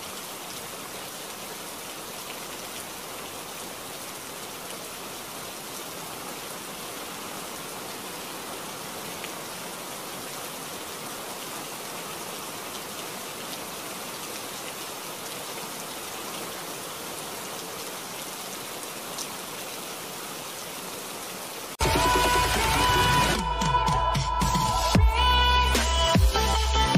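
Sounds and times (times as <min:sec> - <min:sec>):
heavy rain: 0:00.0 - 0:26.9.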